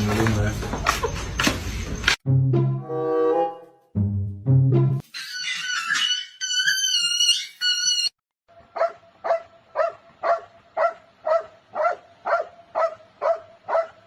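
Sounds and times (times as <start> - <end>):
music: 2.3 - 5.0
dog barking: 8.7 - 14.0.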